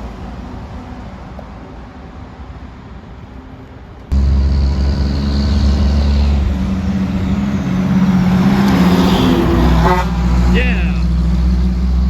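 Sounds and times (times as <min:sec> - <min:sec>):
faint traffic noise: 0:00.0 - 0:11.8
heavy truck diesel engine: 0:04.1 - 0:12.0.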